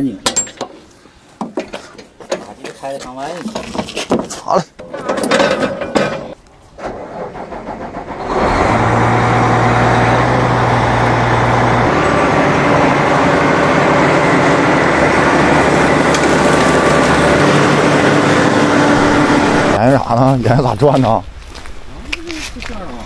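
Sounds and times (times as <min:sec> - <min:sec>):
heavy vehicle engine running: 0:06.9 - 0:19.8.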